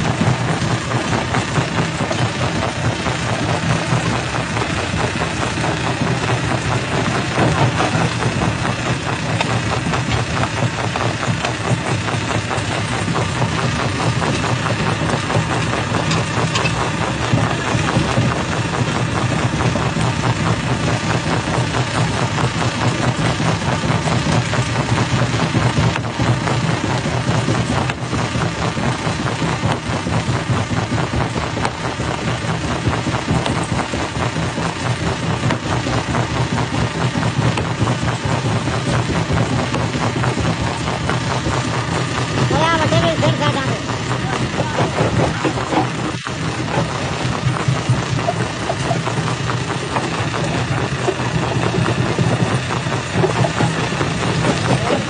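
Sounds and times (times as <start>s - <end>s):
stone crusher rattling drone: 0.0s - 55.0s.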